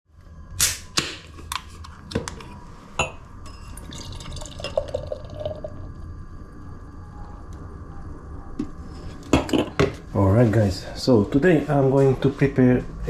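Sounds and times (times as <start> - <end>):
steady low hum: 0.1 - 13.0
glass ringing: 3.0 - 5.7.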